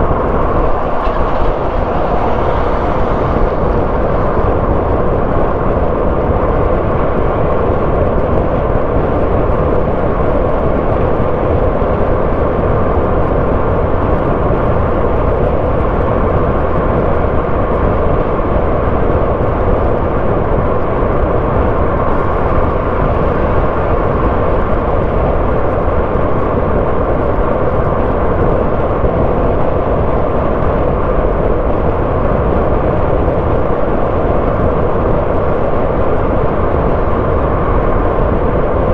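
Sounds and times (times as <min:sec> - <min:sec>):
car engine: 0:00.0 - 0:07.0
tyre road noise: 0:00.0 - 0:09.3, 0:19.5 - 0:27.8.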